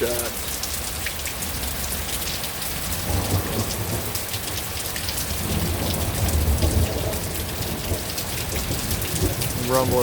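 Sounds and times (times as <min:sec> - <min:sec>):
heavy rain falling: 0:00.0 - 0:10.0
low thunder rumble: 0:03.0 - 0:10.0.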